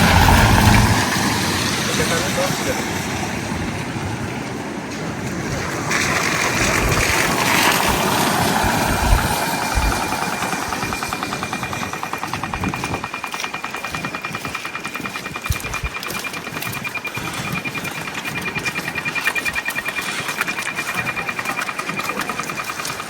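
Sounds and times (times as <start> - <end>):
fast electronic ticking: 0.0 - 2.5, 6.0 - 23.0
traffic passing: 0.0 - 13.1.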